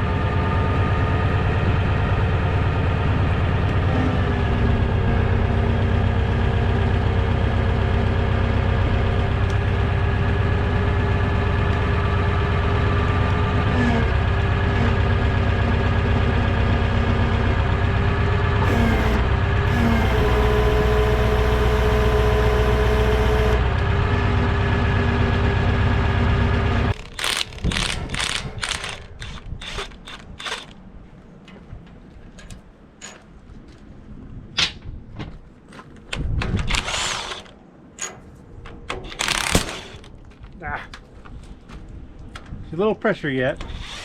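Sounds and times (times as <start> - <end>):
diesel engine running: 0.0 - 30.8.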